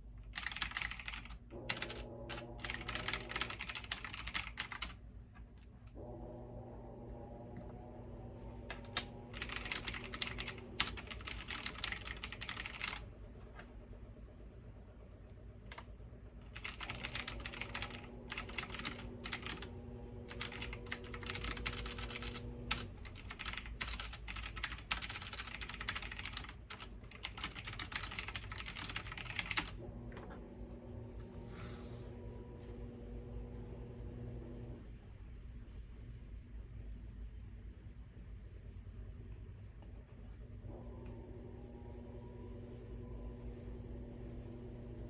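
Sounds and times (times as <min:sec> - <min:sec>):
fast typing on keyboard: 0:00.3 - 0:05.0, 0:09.0 - 0:13.1, 0:16.5 - 0:29.8.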